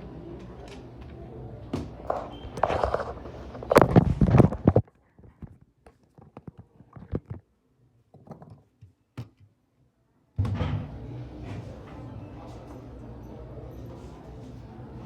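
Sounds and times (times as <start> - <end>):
knocking and scraping on plastic: 2.1 - 7.4.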